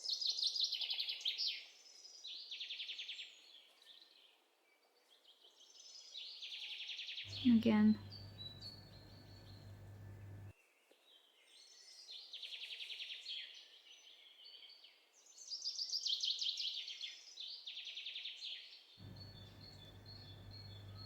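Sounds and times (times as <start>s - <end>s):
songbirds chirping and singing: 7.3s - 10.5s, 19.0s - 21.0s
fast rattling bird trills: 19.0s - 21.0s.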